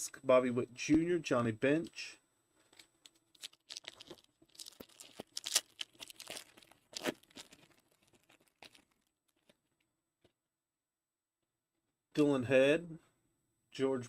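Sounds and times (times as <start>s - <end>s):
foil wrapper crinkling: 2.7s - 9.6s.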